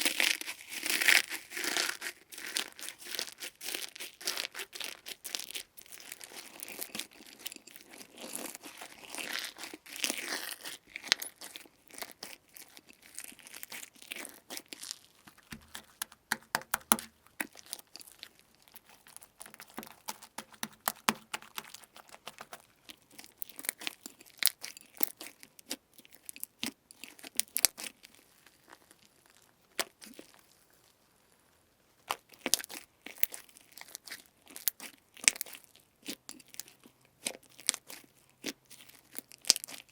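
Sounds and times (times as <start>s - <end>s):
slime squeezed crackling and popping: 9.5s - 27.9s.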